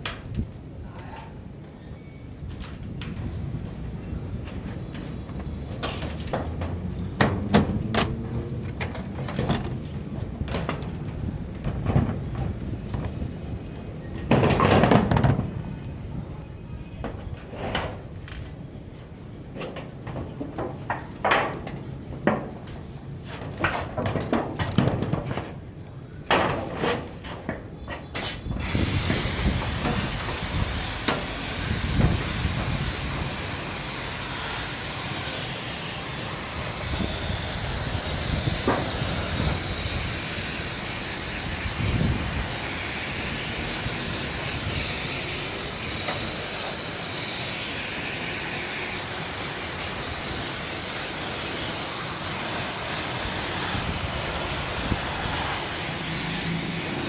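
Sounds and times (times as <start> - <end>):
high-pressure water jet spraying: 28.6 - 57.0.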